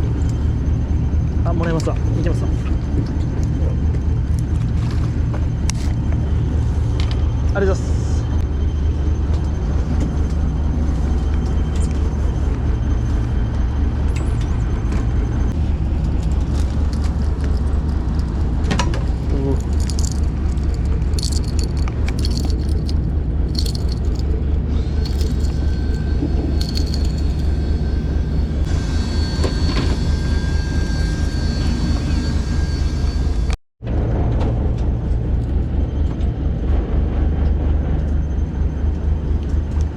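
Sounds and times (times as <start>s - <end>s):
gear clicking and rattling: 15.7s - 28.1s.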